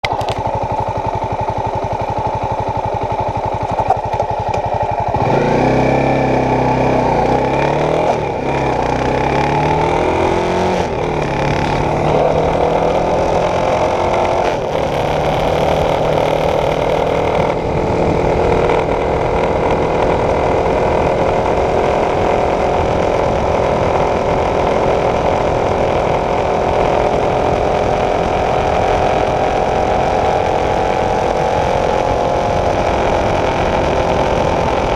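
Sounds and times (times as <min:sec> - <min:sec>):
motorcycle engine idling and accelerating: 0:00.0 - 0:34.9.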